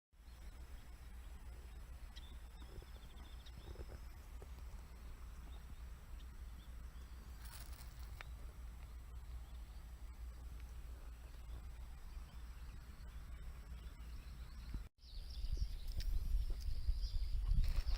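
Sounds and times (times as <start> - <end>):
steady low rumble: 0.2 - 17.8.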